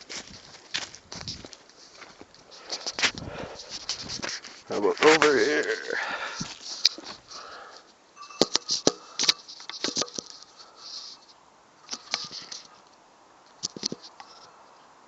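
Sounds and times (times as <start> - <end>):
phone being handled: 8.4 - 11.1.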